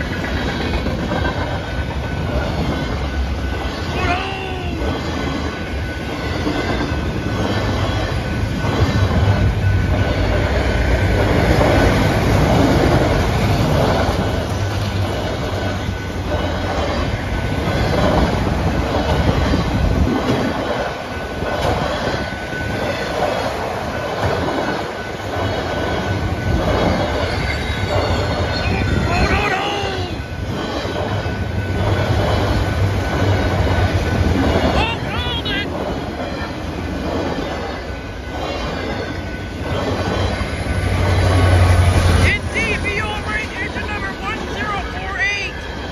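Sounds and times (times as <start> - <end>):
train wheels clattering on rails: 0.0 - 45.9
wheel squeal: 26.5 - 29.6.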